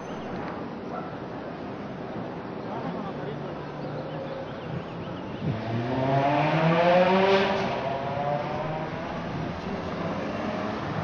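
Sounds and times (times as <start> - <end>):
sports car engine accelerating: 5.4 - 11.0.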